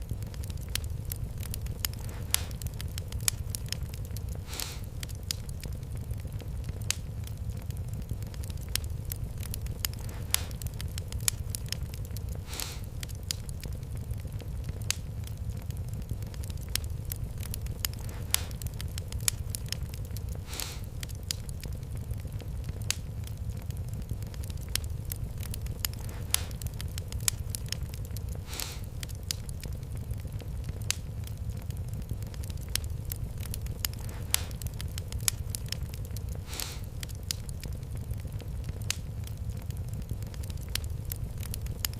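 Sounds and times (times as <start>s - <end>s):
fireplace fire crackling: 0.0s - 41.9s
low steady rumble: 0.0s - 41.9s.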